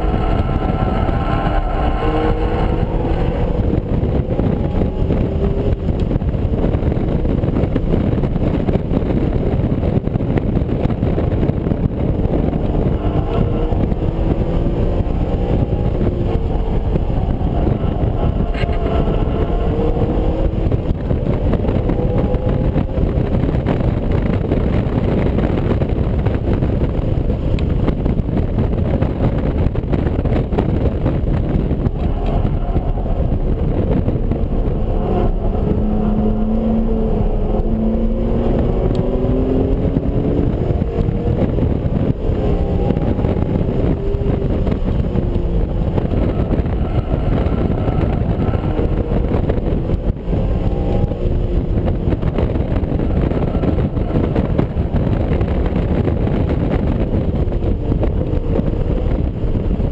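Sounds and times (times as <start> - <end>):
car engine revving: 0.0 - 59.9
road and wind noise: 0.0 - 59.9.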